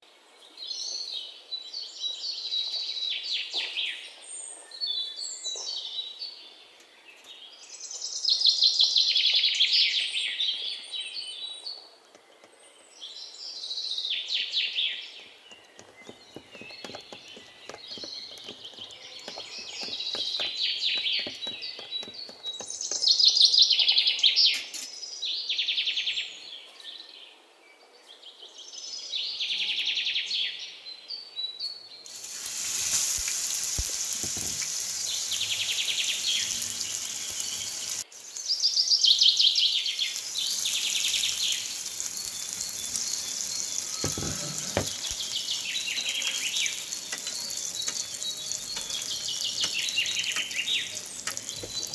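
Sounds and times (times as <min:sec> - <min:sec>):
birds chirping: 0:13.2 - 0:24.9, 0:32.1 - 0:51.9
oil sizzling in frying pan: 0:32.1 - 0:51.9.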